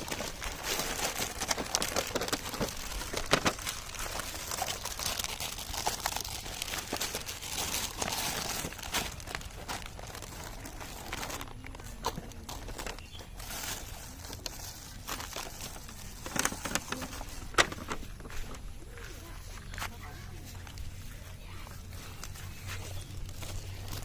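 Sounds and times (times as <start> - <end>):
packaging crinkling: 0.0 - 19.8, 22.1 - 24.0.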